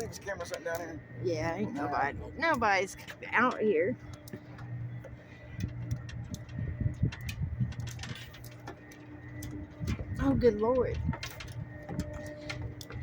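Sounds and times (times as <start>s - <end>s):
low steady rumble: 0.0s - 13.0s
footsteps climbing stairs: 4.3s - 13.0s.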